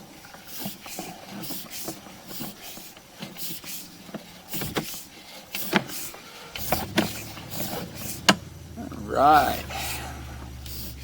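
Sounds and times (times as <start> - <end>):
steady low hiss: 3.8 - 11.0
cable clicks and knocks: 5.6 - 8.5.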